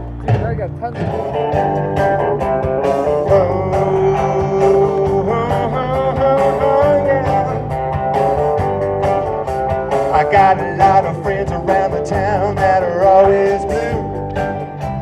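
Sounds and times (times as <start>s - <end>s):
electric guitar bending notes: 0.0s - 15.0s
rock band playing: 0.0s - 15.0s.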